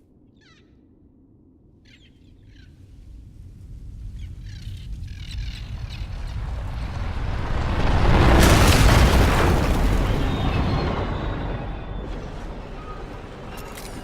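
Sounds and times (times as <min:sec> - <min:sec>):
birds calling: 0:00.3 - 0:00.9, 0:01.8 - 0:02.8
deep rumble: 0:00.8 - 0:14.0.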